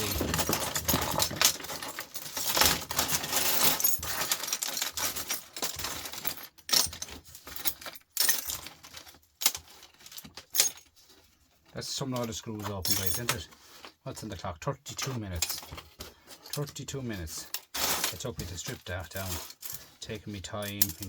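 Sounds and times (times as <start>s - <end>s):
metal screws rattling and clinking: 0.0s - 11.0s, 12.6s - 13.5s, 17.4s - 21.0s.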